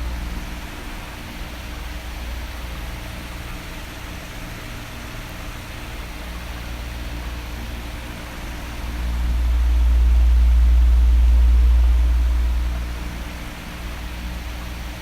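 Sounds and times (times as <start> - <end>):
heavy low air rumble: 0.0 - 3.7, 6.8 - 15.0
electric fan running: 0.0 - 15.0.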